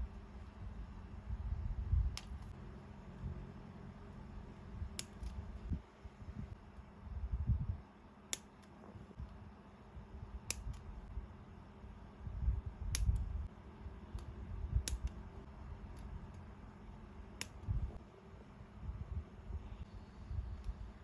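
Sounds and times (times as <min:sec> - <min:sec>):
sharp clicks: 0:05.0 - 0:05.4, 0:12.9 - 0:13.3, 0:14.1 - 0:15.2.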